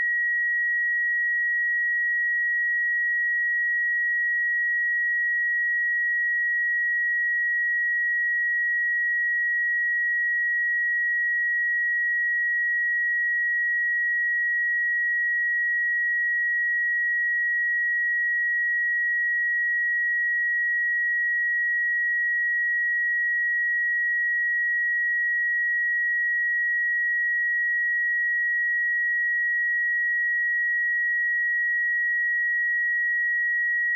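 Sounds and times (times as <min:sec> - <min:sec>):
high-pitched sine-wave tone: 0:00.0 - 0:33.9.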